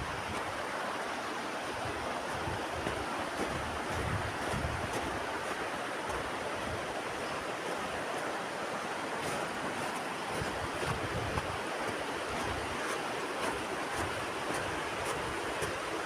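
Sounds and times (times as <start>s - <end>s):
river rushing: 0.0s - 16.0s
wind gusts on microphone: 1.8s - 5.4s.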